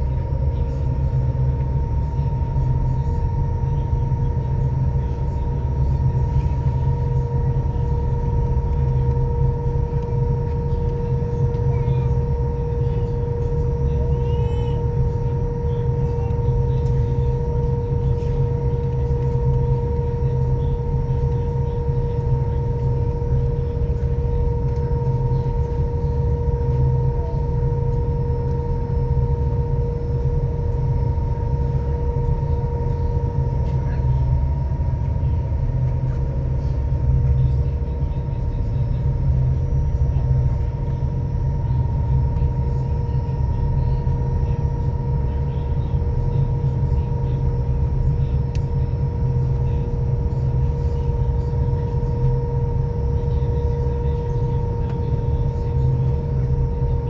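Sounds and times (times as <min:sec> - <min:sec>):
ferry engines rumbling: 0:00.0 - 0:57.0.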